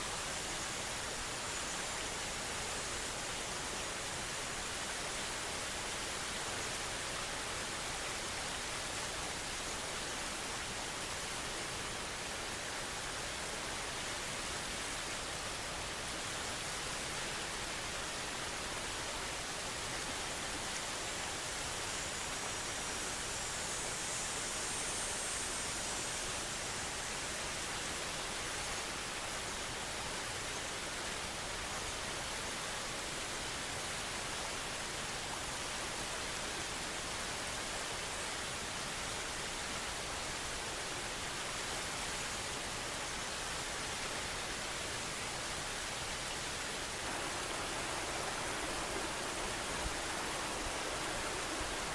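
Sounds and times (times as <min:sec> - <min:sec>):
river valley hiss: 0:00.0 - 0:51.9
outdoor rushing noise: 0:47.0 - 0:51.9.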